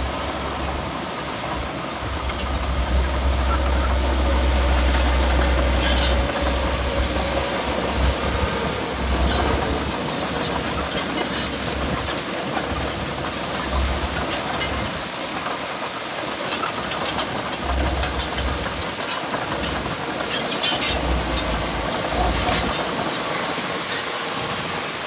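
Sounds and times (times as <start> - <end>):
low rumbles: 0.0 - 15.1, 16.9 - 23.1
heavy machinery din: 0.0 - 24.6.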